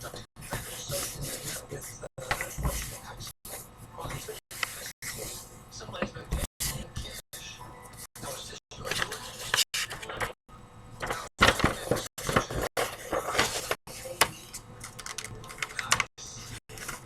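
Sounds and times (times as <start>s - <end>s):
paper rustling and crackling: 11.0s - 13.8s, 16.7s - 17.0s.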